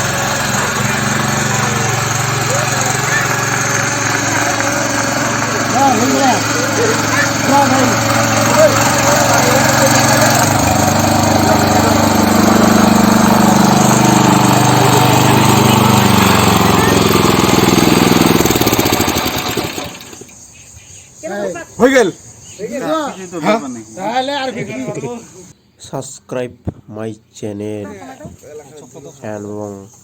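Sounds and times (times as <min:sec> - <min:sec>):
power tiller engine running: 0:00.0 - 0:20.3.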